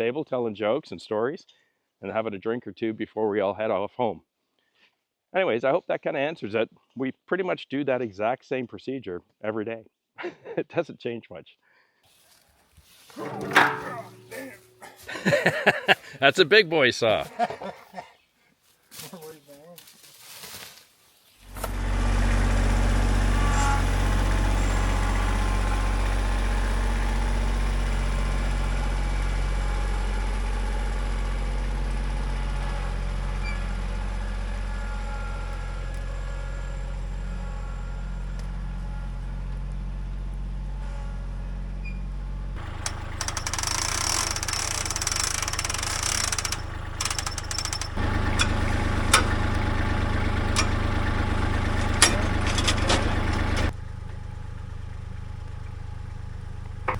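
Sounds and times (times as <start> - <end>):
engine idling: 13.2 - 15.1, 21.4 - 41.4, 42.0 - 56.9.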